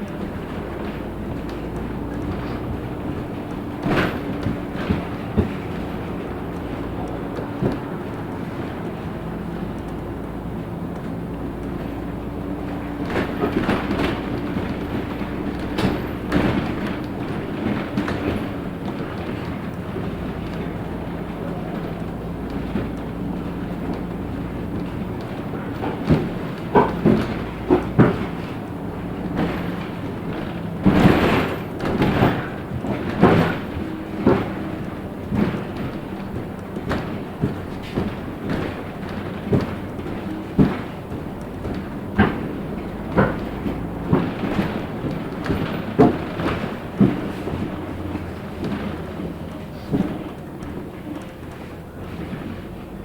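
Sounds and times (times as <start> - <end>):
bus engine droning: 0.0 - 53.0
loud knocks and rattles: 0.0 - 53.0.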